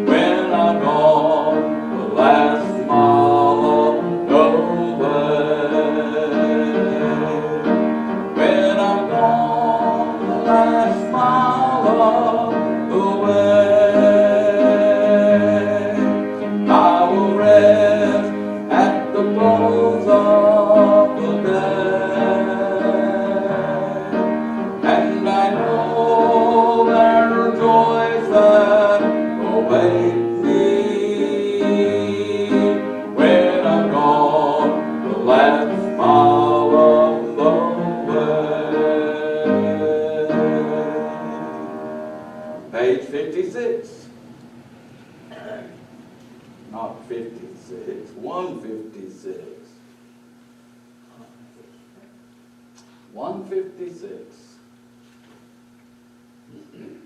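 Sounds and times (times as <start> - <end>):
congregation singing a hymn: 0.0 - 44.0.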